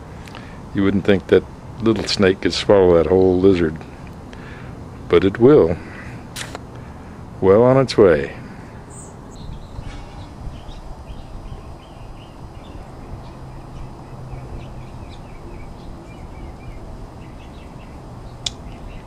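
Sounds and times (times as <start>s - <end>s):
birds chirping: 8.6s - 19.0s.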